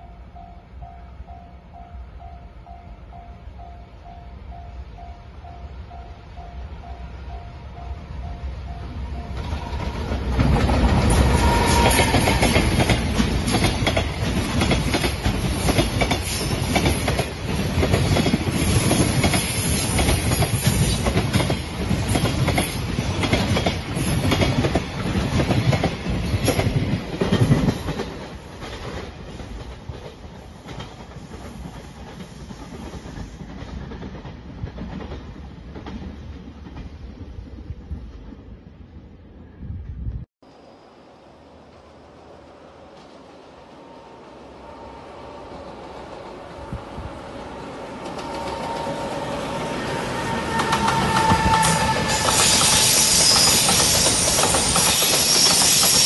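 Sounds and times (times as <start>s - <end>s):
train wheels clattering over rail joints: 9.8s - 36.9s.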